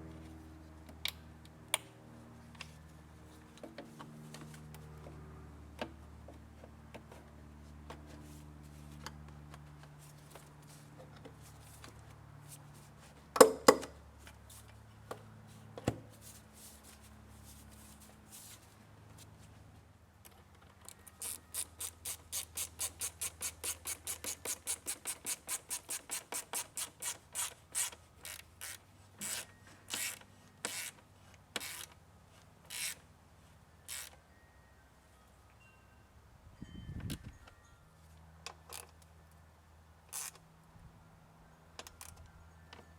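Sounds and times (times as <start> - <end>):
ratchet wrench clicking: 21.1 - 31.0, 31.6 - 32.0, 32.7 - 33.0, 33.9 - 34.2, 40.1 - 40.4.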